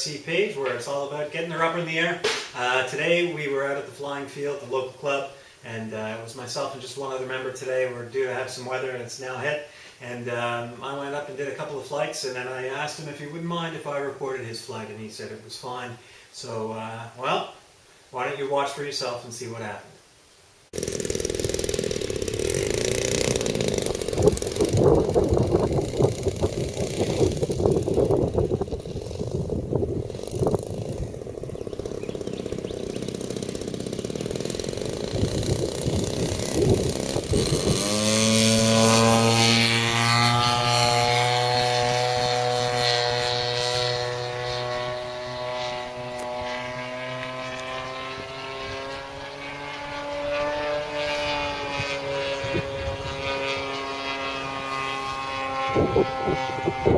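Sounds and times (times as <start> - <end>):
model airplane propeller drone: 20.8 - 56.9.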